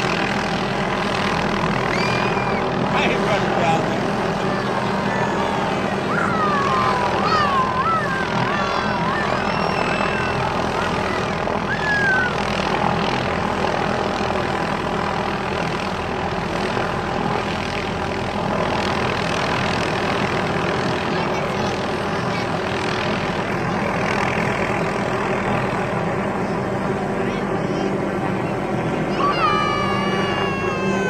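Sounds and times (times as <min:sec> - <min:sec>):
helicopter engine and rotor: 0:00.0 - 0:31.0.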